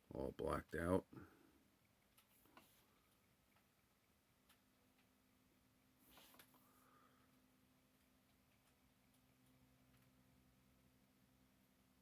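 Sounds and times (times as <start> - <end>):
faint rustle: 5.9 - 7.4.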